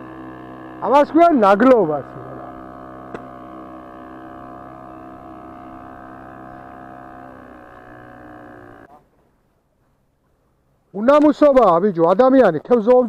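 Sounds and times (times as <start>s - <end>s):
motorboat engine droning: 0.0s - 8.9s.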